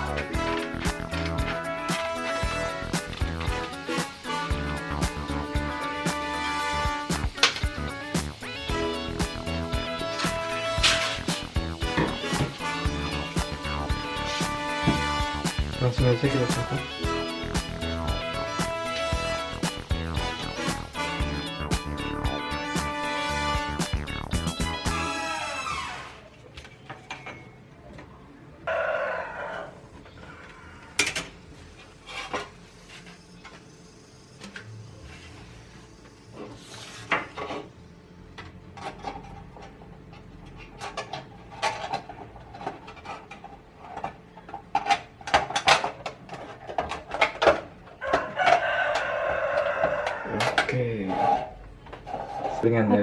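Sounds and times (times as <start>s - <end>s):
rooster crowing: 28.7s - 30.9s, 48.0s - 50.5s.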